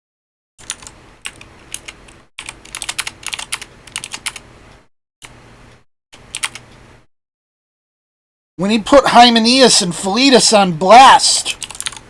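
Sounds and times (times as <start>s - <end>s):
computer keyboard typing: 0.6s - 4.4s, 6.3s - 6.6s, 11.5s - 12.0s.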